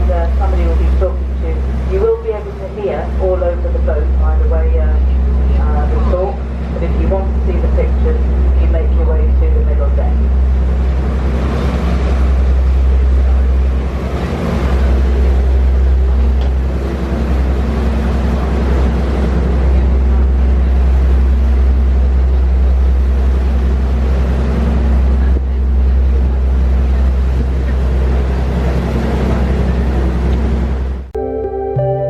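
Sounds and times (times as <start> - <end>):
wind and water rushing: 0.0 - 31.1
boat engine droning: 0.0 - 32.0
ambient music: 31.0 - 32.0.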